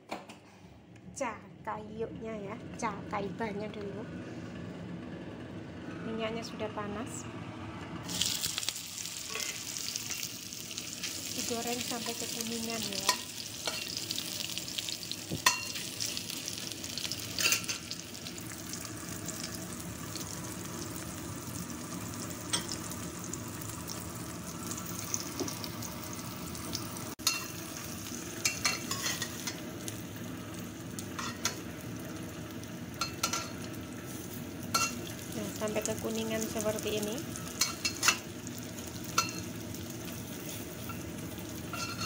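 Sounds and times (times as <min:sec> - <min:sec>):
food sizzling in hot oil: 0:08.0 - 0:42.0
metal utensil scraping a pan: 0:09.3 - 0:10.3, 0:41.7 - 0:42.0.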